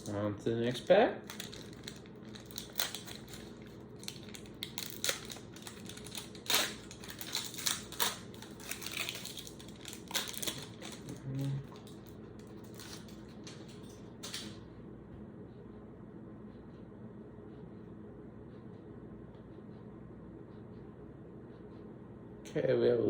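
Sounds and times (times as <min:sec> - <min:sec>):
card pack wrapper crinkling: 0:00.6 - 0:13.8.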